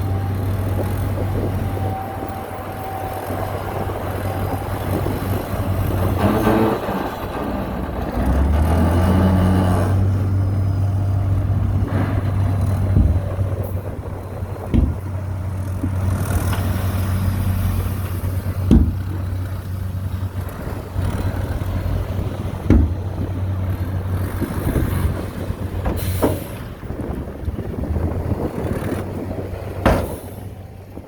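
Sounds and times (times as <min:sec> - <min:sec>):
heavy diesel engine running: 0:00.0 - 0:31.0
short sharp knocks: 0:14.7 - 0:15.1, 0:18.7 - 0:19.2, 0:22.6 - 0:23.3.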